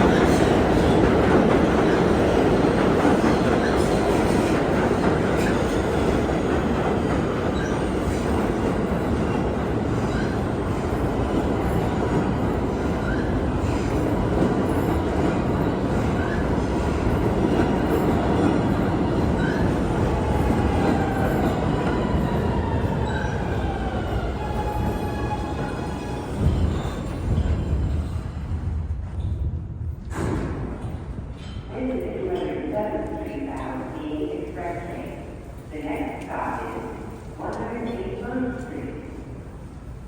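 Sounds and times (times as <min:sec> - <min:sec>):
subway train wheels rumbling on rail: 0:00.0 - 0:40.0.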